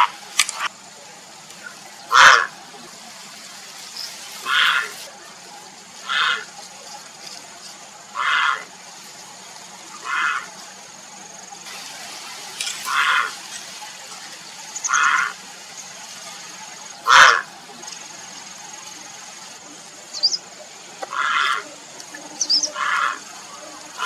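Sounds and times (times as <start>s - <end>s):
heron harsh calls: 2.1s - 2.5s, 4.4s - 5.1s, 6.0s - 6.6s, 8.1s - 8.7s, 10.0s - 10.6s, 12.9s - 13.4s, 14.8s - 15.4s, 17.0s - 17.5s, 21.1s - 21.6s, 22.6s - 23.3s.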